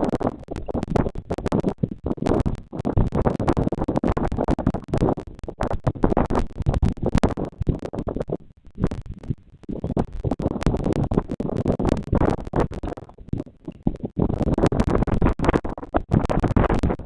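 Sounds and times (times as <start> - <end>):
scratching and crackling on microphone: 0.0 - 17.0.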